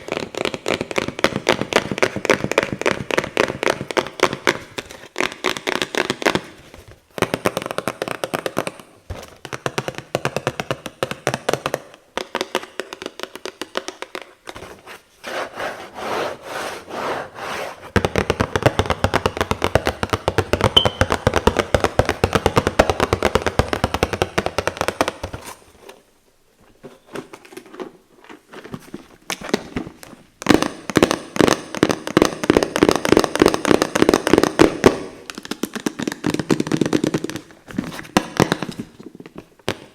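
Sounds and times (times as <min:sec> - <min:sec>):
rapid tapping and scratching on boxes: 0:00.0 - 0:26.0, 0:28.4 - 0:39.9.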